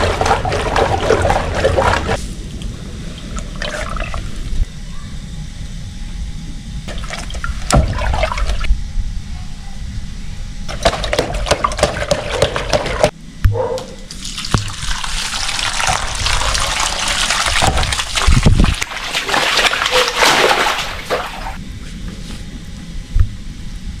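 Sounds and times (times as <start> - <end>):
water rushing and splashing: 0.0 - 2.2, 15.2 - 21.6.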